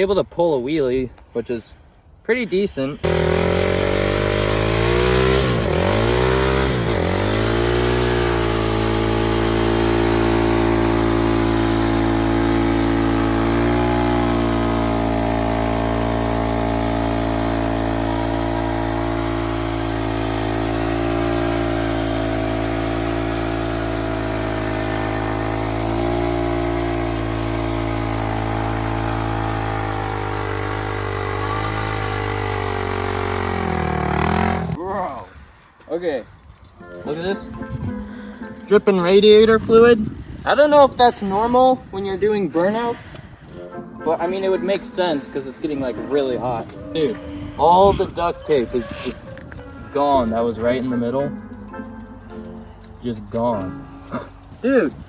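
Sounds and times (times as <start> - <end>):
dirt bike engine revving: 3.0 - 34.9.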